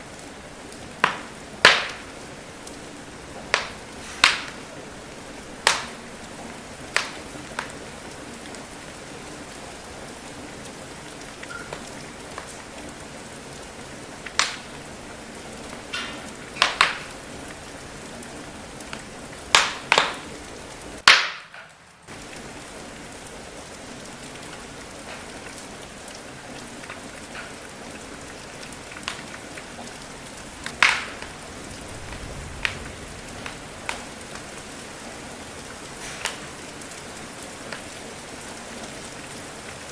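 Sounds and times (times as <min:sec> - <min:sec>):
steady rain: 0:00.0 - 0:39.9
wood fire crackling and popping: 0:00.0 - 0:39.9.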